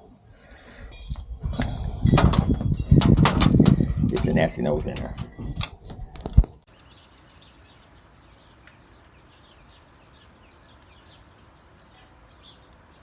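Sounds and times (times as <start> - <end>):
small birds chirping: 6.6 - 13.0.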